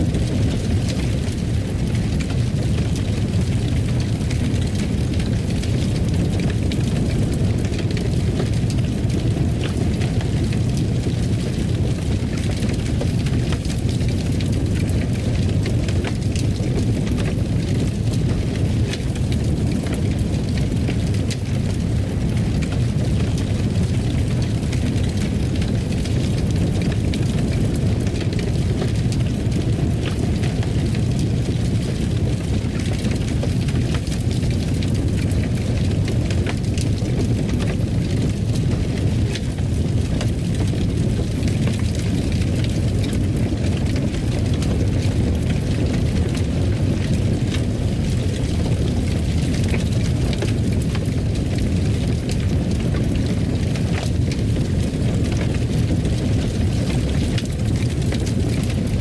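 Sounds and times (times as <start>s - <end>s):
fire rumbling: 0.0s - 59.0s
wood crackling and popping: 0.0s - 59.0s.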